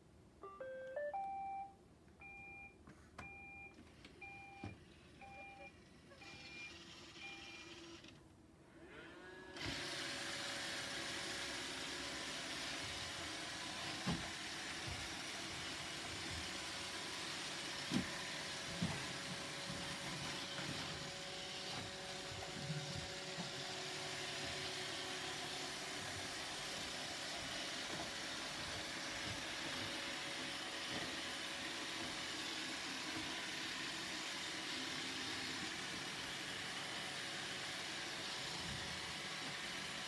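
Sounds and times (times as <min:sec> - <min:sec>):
short beeps: 0:00.4 - 0:04.6
robot vacuum motor and brushes: 0:05.6 - 0:40.0.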